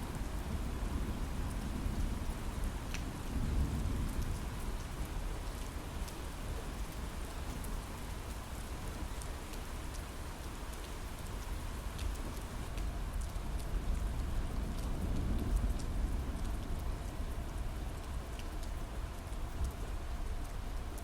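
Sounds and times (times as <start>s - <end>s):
heavy rain on window: 0.0s - 21.0s.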